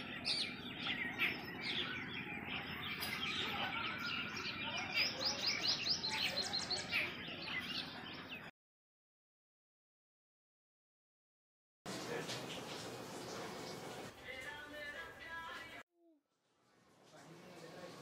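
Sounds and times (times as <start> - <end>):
small birds chirping and twittering: 0.0 - 8.5, 11.9 - 14.2.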